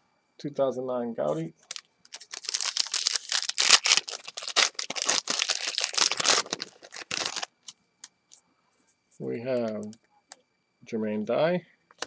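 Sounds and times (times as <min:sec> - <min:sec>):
wrapper tearing and crinkling: 0:01.6 - 0:07.5.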